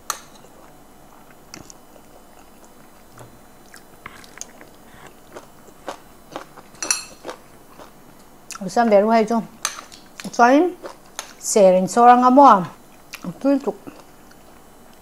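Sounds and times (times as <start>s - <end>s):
chewing and crunching: 0.3s - 8.7s, 9.7s - 11.4s, 12.8s - 15.0s
fork clinking against dishes: 6.8s - 7.3s.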